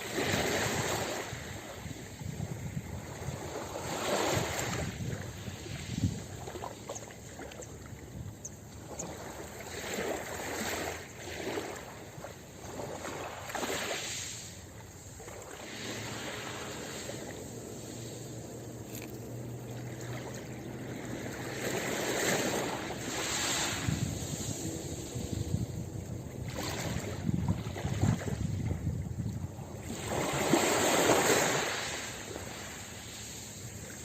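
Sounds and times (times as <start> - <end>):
ocean surf breaking: 12.8 - 28.2, 29.8 - 34.0.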